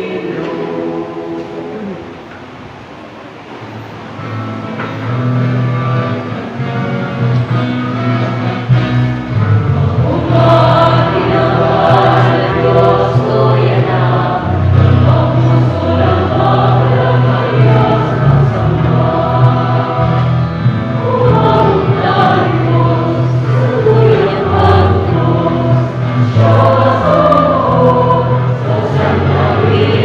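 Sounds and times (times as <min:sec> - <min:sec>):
choir singing a hymn: 0:00.0 - 0:02.4, 0:08.3 - 0:30.0
steady bass line: 0:08.1 - 0:30.0.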